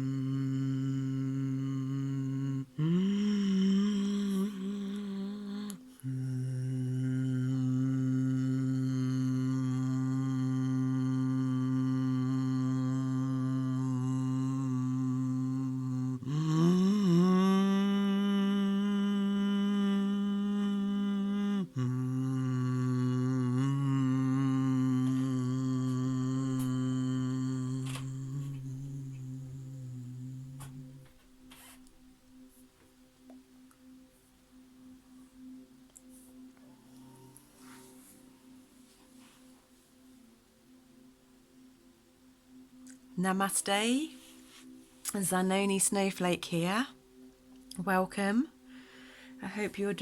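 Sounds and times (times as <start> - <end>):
higher sliding vocal note: 0.0 - 31.8
low humming vocal tone: 0.0 - 31.9.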